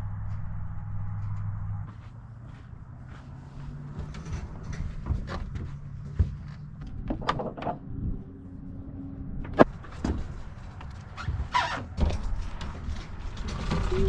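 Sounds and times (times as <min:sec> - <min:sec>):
vehicle engine rumble: 0:00.0 - 0:14.0
knocks and clicks: 0:04.0 - 0:07.9.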